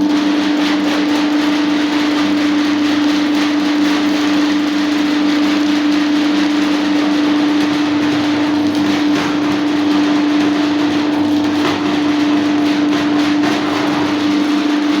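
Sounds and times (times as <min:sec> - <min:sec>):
drain-cleaning machine motor hum: 0:06.7 - 0:15.0.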